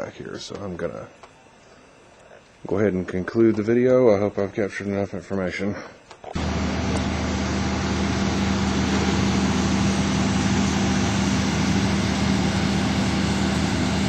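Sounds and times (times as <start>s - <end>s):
engine droning: 6.4s - 14.0s.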